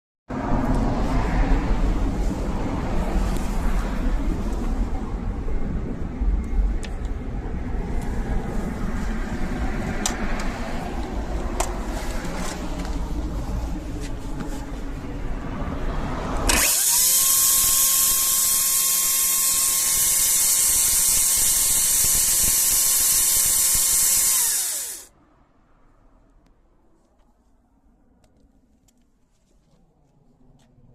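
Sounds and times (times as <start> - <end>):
low rumble: 0.3 - 16.5
cordless chainsaw running: 16.5 - 25.1.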